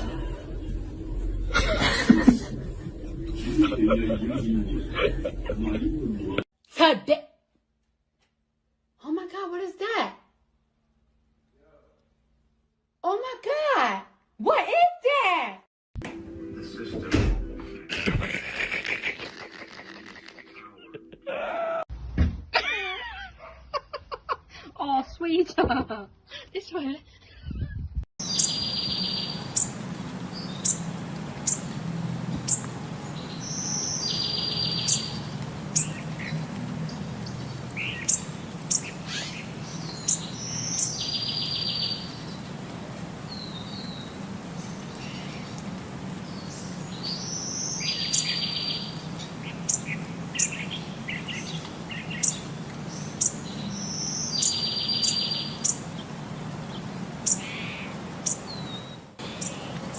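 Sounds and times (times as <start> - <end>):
bird chirping: 28.2 - 31.8, 32.4 - 42.5, 46.3 - 59.9
buzzy bird call: 37.8 - 42.2.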